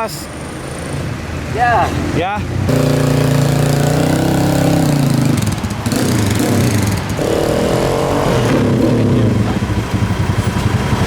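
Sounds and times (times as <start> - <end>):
small motorcycle engine revving: 2.7 - 11.0.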